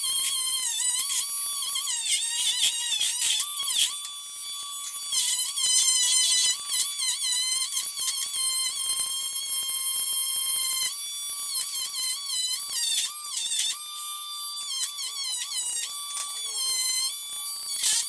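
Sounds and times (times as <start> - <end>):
rotary tool whining: 5.1 - 18.0.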